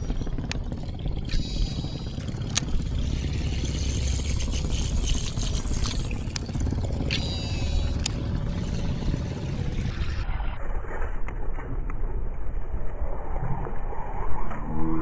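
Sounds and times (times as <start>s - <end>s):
boat engine rumbling: 0.0s - 12.4s
sharp clicks: 2.5s - 2.7s.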